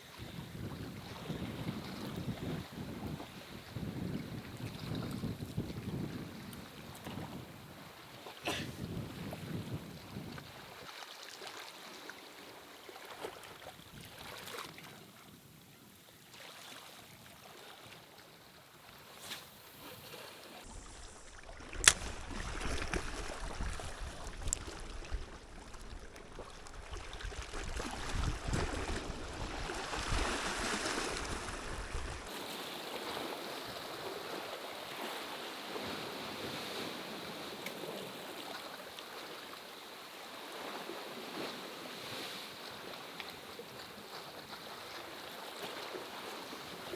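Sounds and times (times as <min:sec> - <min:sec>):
wind rumbling on microphone: 0:00.1 - 0:08.0, 0:08.6 - 0:10.8, 0:20.6 - 0:32.3
surf washing over rocks: 0:20.6 - 0:38.2
sharp click: 0:21.7 - 0:22.2.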